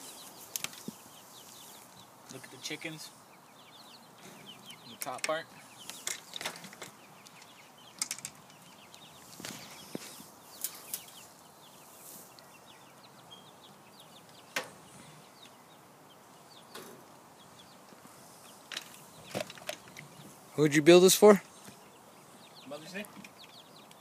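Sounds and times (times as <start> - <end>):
chickens clucking: 0.0 - 24.0
knocks and rustles: 5.1 - 7.0, 18.7 - 20.1.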